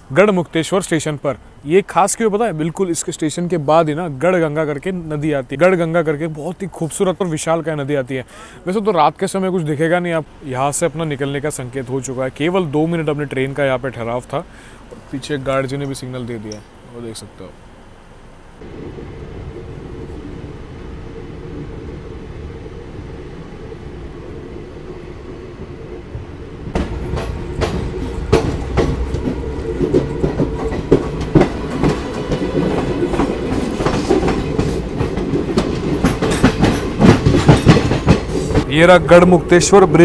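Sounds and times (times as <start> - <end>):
train rumbling: 8.7 - 40.0
wheels clattering over rail joints: 26.2 - 40.0.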